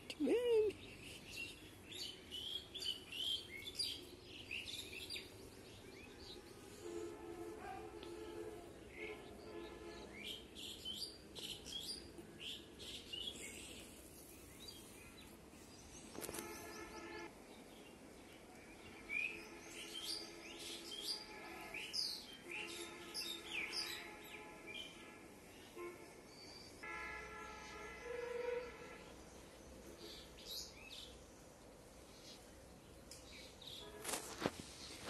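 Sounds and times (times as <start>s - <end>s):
small birds chirping: 0.0s - 9.4s, 10.0s - 17.0s.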